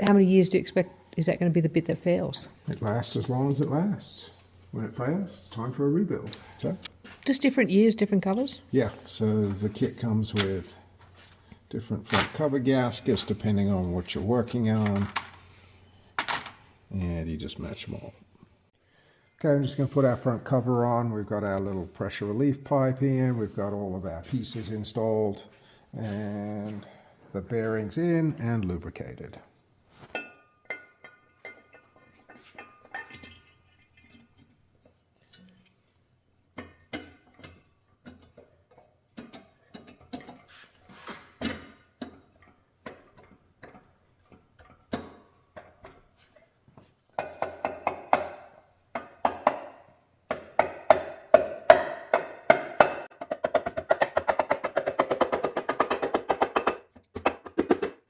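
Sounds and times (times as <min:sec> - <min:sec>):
fast clicks and taps: 0:52.5 - 0:58.0.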